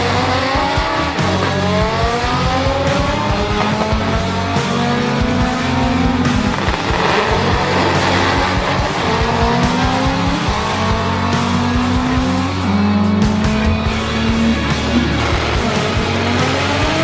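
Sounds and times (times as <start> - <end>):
background music: 0.0 - 17.0
car engine revving: 0.0 - 17.0.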